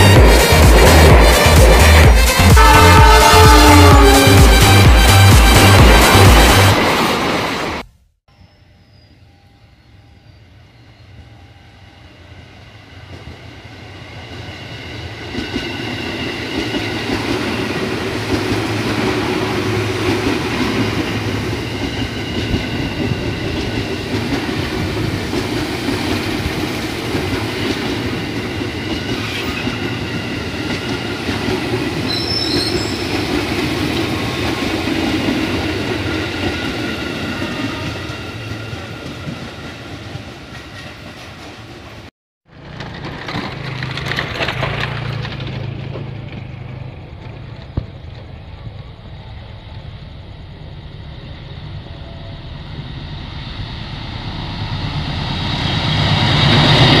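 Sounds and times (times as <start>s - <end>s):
electric train passing: 0.0s - 57.0s
high whine of train: 0.0s - 57.0s
wheels running on rails: 42.5s - 49.5s.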